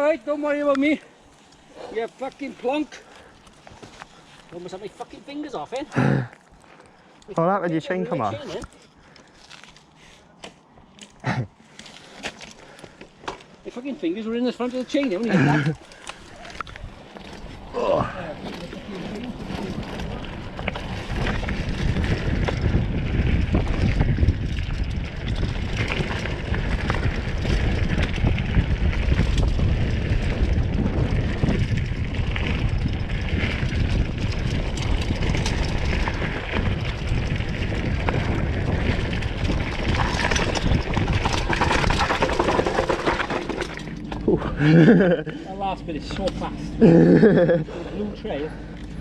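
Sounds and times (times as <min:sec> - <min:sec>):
bike tyres rumbling on dirt: 0:00.0 - 0:06.8, 0:10.8 - 0:49.0
bike knocks and rattles: 0:11.8 - 0:45.2
wind buffeting microphone: 0:15.5 - 0:45.2.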